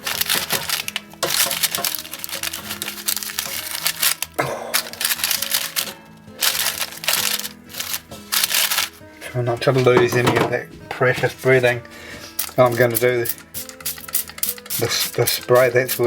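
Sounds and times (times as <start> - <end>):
chicken crackling in air fryer basket: 0.0 - 4.4
background music: 0.0 - 16.0.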